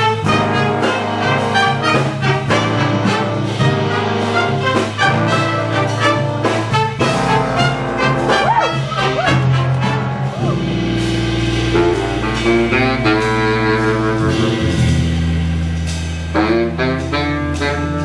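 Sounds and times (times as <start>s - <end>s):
horn section sustained chords: 0.0s - 18.0s
jazz big band playing: 0.0s - 18.0s
steady bass line: 0.0s - 18.0s.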